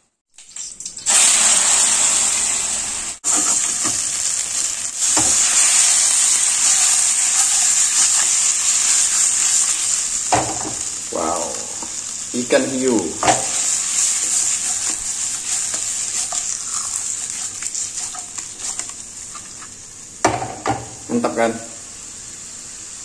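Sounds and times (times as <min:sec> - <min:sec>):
meat sizzling in hot oil: 0:00.3 - 0:23.0
knocks of stirring in pan: 0:03.2 - 0:21.3.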